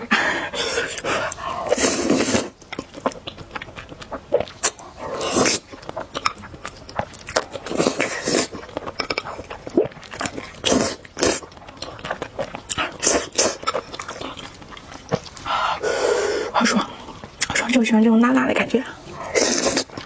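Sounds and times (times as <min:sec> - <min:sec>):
chewing sounds: 0:00.5 - 0:17.8, 0:18.9 - 0:20.0
wet slurping of noodles: 0:00.6 - 0:02.6, 0:04.6 - 0:05.7, 0:07.7 - 0:08.7, 0:19.1 - 0:20.0.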